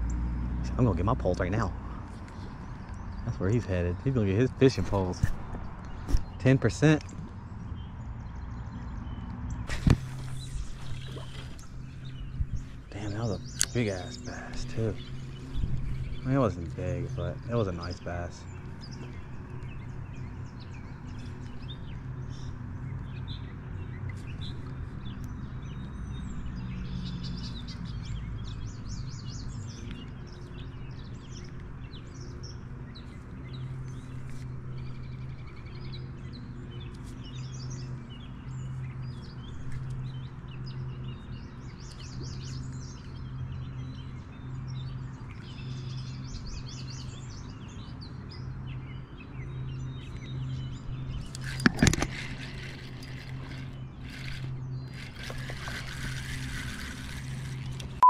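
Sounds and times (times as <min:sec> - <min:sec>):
small birds chirping and singing: 0:00.0 - 0:58.0
steady low hum: 0:49.0 - 0:58.0.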